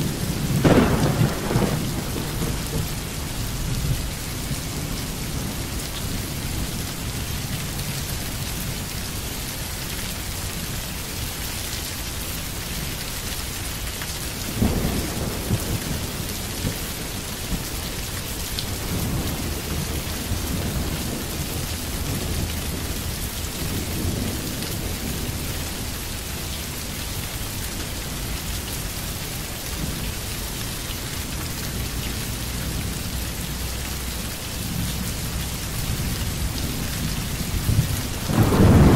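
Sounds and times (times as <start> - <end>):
low rolling thunder: 0.0 - 7.5, 14.4 - 26.5, 34.4 - 38.9
steady rain: 0.0 - 38.9.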